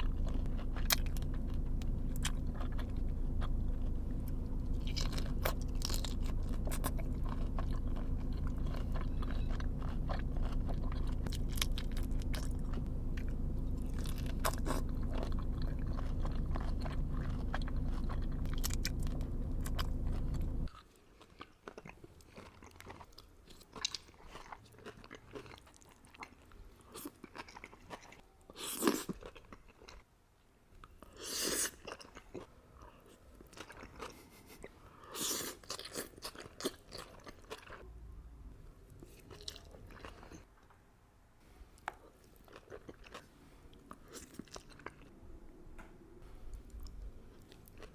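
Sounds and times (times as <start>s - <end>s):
steady low hum: 0.0s - 20.7s
person chewing and crunching food: 0.0s - 30.2s, 30.8s - 37.9s, 38.9s - 40.7s, 41.7s - 45.2s, 46.2s - 47.9s.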